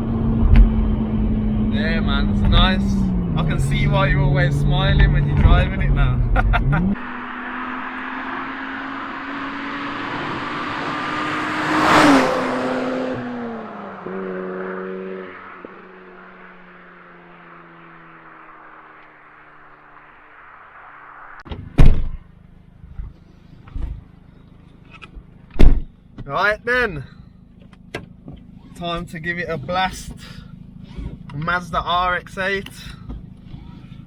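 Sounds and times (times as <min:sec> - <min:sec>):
car engine driving past: 0:00.0 - 0:21.5
loud sharp thump: 0:21.5 - 0:22.2, 0:25.6 - 0:25.9.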